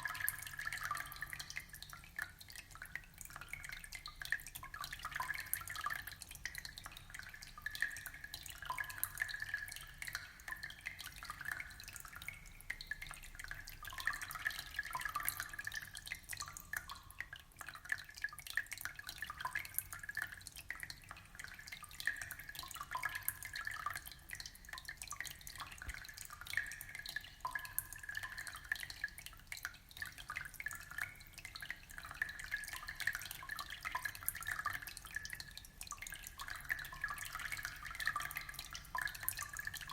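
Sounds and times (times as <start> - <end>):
aquarium water trickling and bubbling: 0.0 - 39.9.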